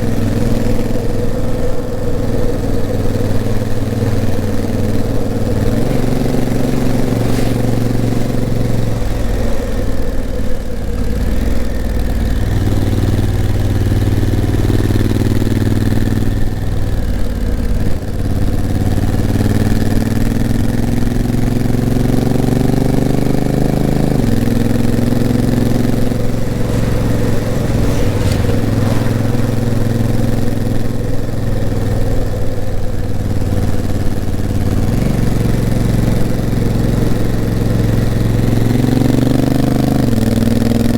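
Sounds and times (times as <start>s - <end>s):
wind and road noise: 0.0s - 17.8s, 23.6s - 32.7s
motorcycle engine climbing uphill: 0.0s - 40.9s.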